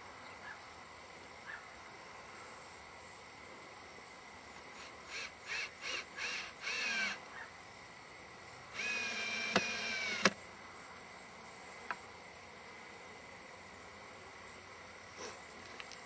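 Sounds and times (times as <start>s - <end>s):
sharp clicks: 8.8s - 10.4s.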